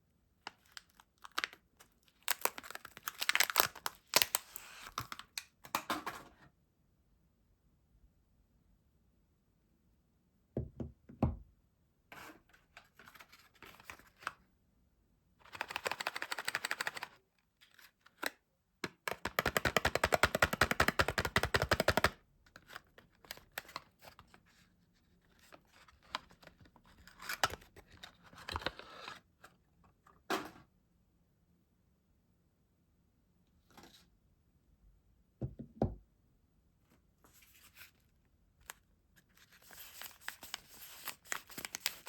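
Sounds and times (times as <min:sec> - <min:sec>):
wrapping crinkling and tearing: 0:00.5 - 0:05.4, 0:39.3 - 0:42.0
packaging rustling: 0:00.6 - 0:05.3, 0:39.3 - 0:42.0.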